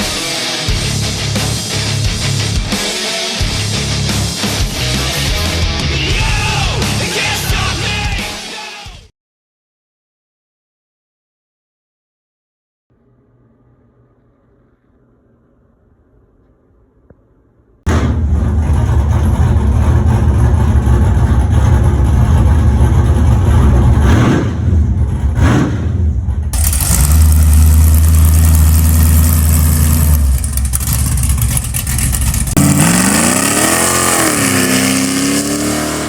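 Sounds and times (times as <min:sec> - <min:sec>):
car engine running: 0:00.7 - 0:02.8, 0:17.9 - 0:36.0
car engine revving: 0:17.9 - 0:36.0.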